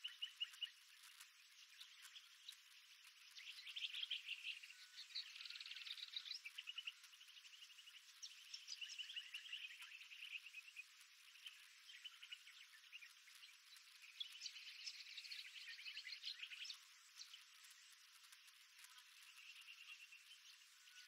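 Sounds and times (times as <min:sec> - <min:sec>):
birds trilling and chirping: 0:00.0 - 0:21.0.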